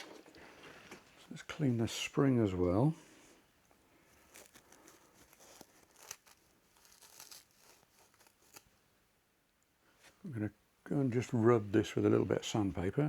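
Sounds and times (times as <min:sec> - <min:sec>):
rustling and scratching: 0:04.0 - 0:08.8.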